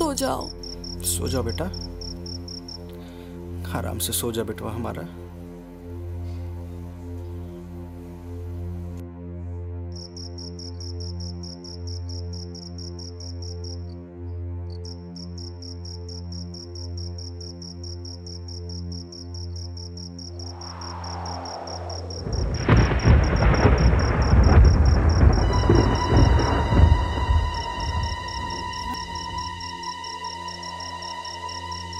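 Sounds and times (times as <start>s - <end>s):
crickets chirping: 0.0s - 3.2s, 9.8s - 31.9s
low music drone: 0.0s - 11.4s, 20.2s - 31.9s
thunder rumble: 20.4s - 29.6s.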